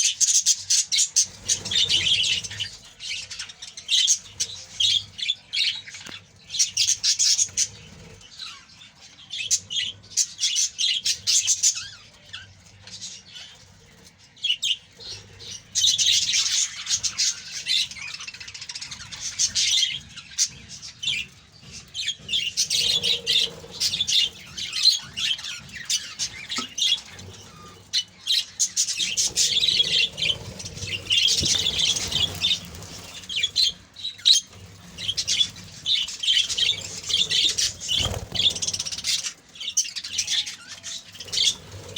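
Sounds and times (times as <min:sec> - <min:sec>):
budgerigars chirping and chattering: 0:00.0 - 0:41.9.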